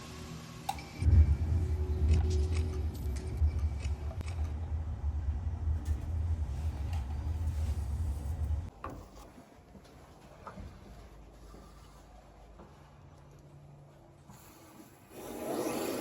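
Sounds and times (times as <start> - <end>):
low rumble: 1.0 - 8.7.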